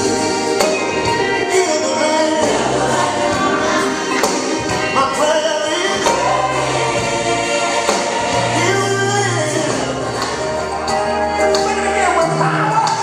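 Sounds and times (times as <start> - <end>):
voices singing over a band: 0.0 - 13.0.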